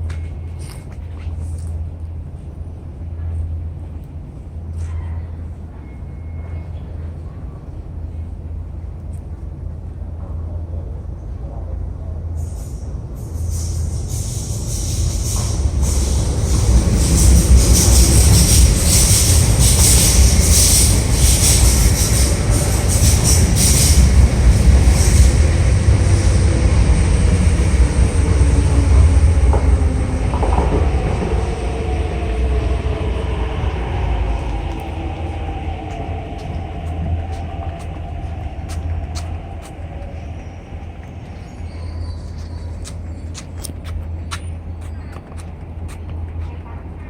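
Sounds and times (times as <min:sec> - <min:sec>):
train rail and wheel noise: 0:00.0 - 0:47.0
wheels squealing: 0:13.2 - 0:46.5
faint whining tones: 0:18.2 - 0:47.0.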